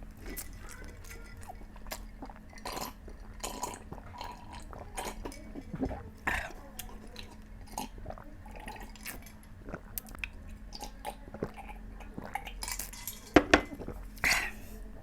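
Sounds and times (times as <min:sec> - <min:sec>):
chewing: 0:00.0 - 0:14.8
clinks against a plate: 0:13.0 - 0:13.8.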